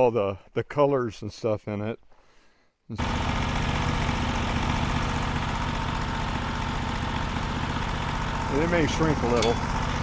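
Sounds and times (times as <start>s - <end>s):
small gasoline engine idling: 3.0s - 10.0s.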